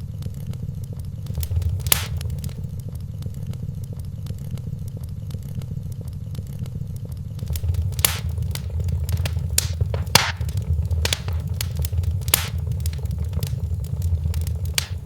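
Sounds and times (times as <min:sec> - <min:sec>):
low rumble of fire: 0:01.2 - 0:03.0, 0:07.4 - 0:15.0
sharp loud pops: 0:01.3 - 0:02.6, 0:07.5 - 0:15.0
wood fire crackling: 0:01.3 - 0:02.8, 0:07.4 - 0:15.0.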